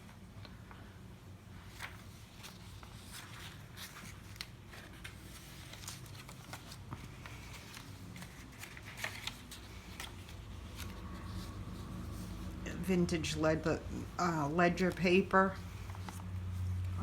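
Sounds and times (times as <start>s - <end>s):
paper pages rustling: 1.6s - 12.6s, 14.8s - 17.0s.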